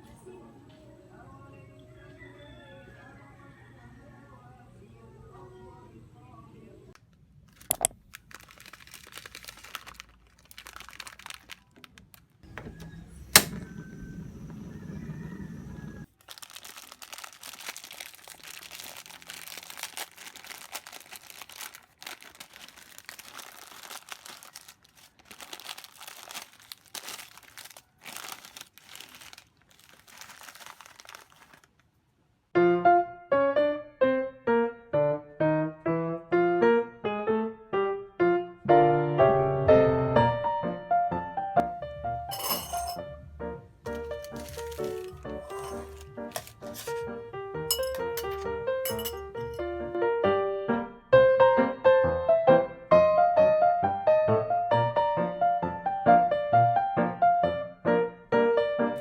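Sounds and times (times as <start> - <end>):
crinkling and rustling: 7.0 - 14.6, 16.0 - 32.0, 42.3 - 43.0, 43.9 - 49.6
piano music: 36.4 - 59.0.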